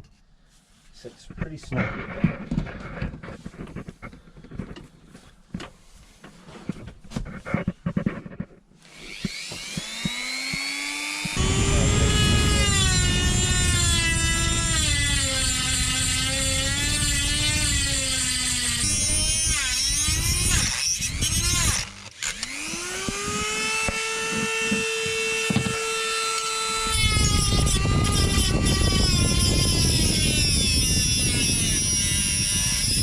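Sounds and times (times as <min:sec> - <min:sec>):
power tool motor whine: 0:08.8 - 0:33.0
cutting disc grinding metal: 0:08.9 - 0:33.0.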